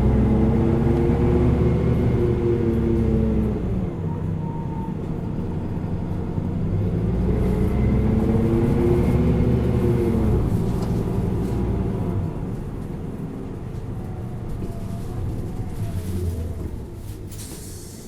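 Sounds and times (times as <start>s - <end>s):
bus diesel engine: 0.0s - 18.0s.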